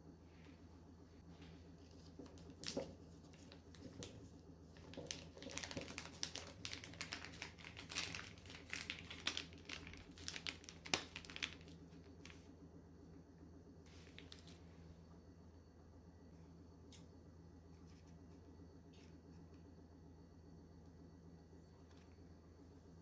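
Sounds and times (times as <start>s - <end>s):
crisp crackling and clicking: 4.8s - 12.4s.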